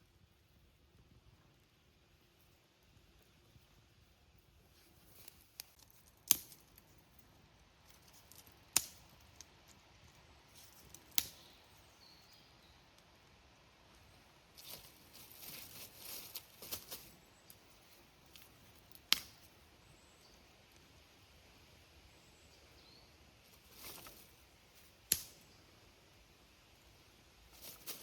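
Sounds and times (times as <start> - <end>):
crackling rustle: 0.0 - 28.0
sharp snaps: 5.6 - 6.9, 8.2 - 9.5, 10.6 - 11.6, 18.3 - 19.5, 23.7 - 25.5.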